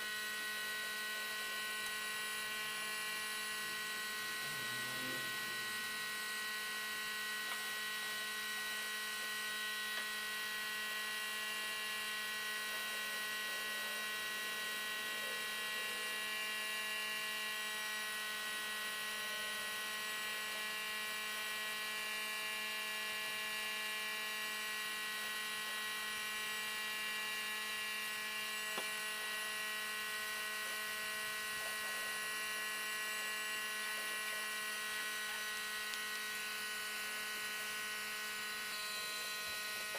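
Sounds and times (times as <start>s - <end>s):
electric motor whining: 0.0s - 39.9s.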